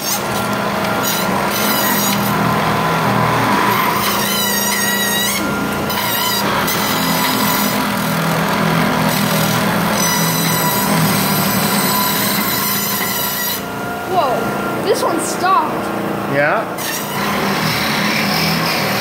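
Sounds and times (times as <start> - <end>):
high squeal: 9.9 - 13.7.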